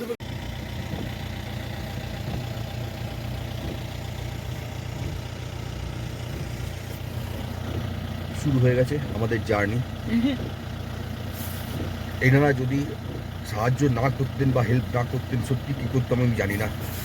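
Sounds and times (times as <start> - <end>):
car engine humming in cabin: 0.0 - 17.0.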